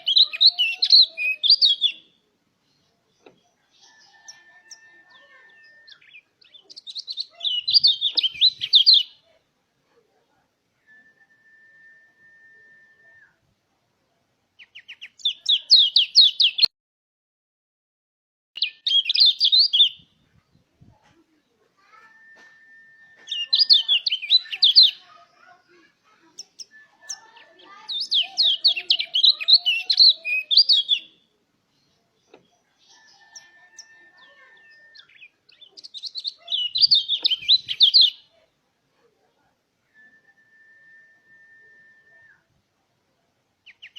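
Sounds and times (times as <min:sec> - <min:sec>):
bird chirping: 0:00.0 - 0:09.4, 0:14.6 - 0:16.7, 0:18.6 - 0:38.4, 0:43.6 - 0:43.9.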